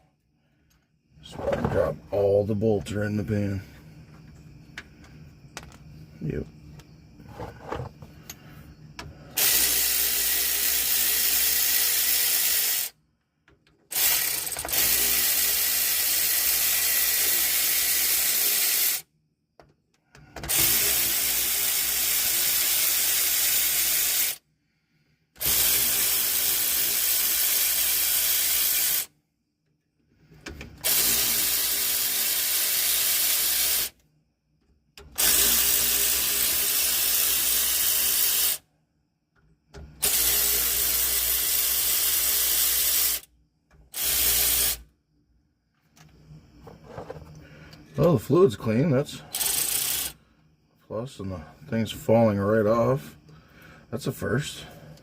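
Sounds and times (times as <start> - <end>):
power ratchet whirring: 7.3 - 13.0, 13.9 - 19.1, 20.3 - 24.4, 25.4 - 29.1, 30.4 - 34.0, 35.0 - 38.6, 39.8 - 43.3, 43.9 - 44.9, 49.3 - 50.2.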